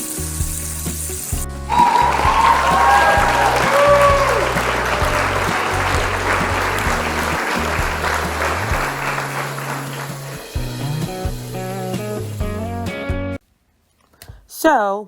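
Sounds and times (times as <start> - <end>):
chicken frying in hot oil: 0.0 - 1.6
background music with guitar: 0.0 - 13.4.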